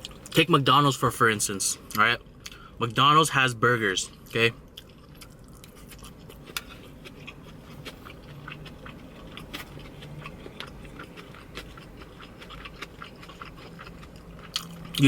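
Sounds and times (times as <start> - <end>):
wet chewing clicks and smacks: 4.3 - 15.0.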